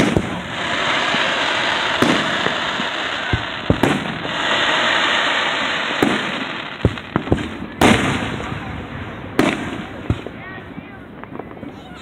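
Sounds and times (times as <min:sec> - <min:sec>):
firework shells bursting: 0:00.0 - 0:08.6.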